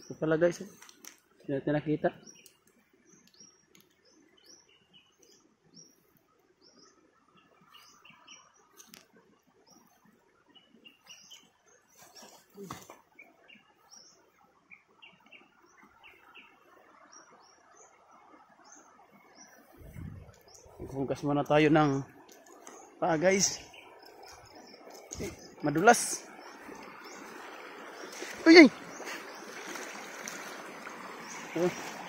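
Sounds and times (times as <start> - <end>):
leaves rustling: 19.7 - 32.0
footsteps through undergrowth: 23.7 - 32.0.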